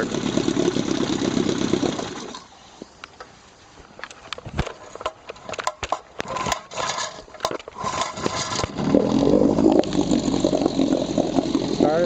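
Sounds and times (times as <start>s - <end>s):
outboard motor running: 0.0s - 2.4s, 8.7s - 12.0s
rope pulls rasping: 6.2s - 11.5s.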